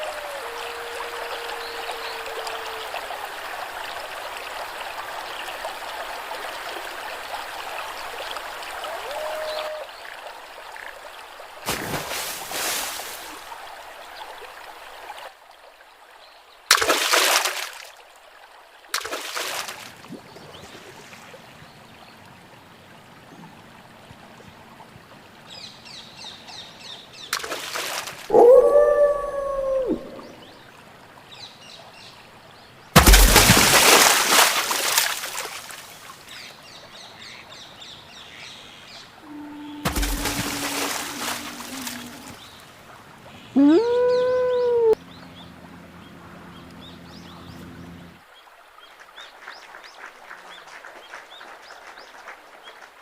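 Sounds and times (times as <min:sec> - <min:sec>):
wolf howling: 0:00.0 - 0:03.2, 0:08.9 - 0:09.9, 0:28.3 - 0:30.4, 0:39.2 - 0:42.4, 0:43.6 - 0:45.0
water splashing: 0:00.0 - 0:09.9, 0:11.4 - 0:15.3, 0:16.7 - 0:18.0, 0:18.9 - 0:21.6, 0:27.3 - 0:30.7, 0:33.0 - 0:36.4, 0:39.2 - 0:53.0.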